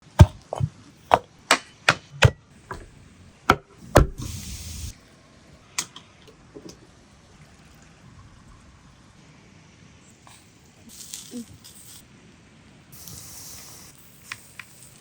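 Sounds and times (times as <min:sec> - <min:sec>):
chopping knocks on wood: 0:00.2 - 0:04.3
brief hissing rush: 0:04.0 - 0:05.0.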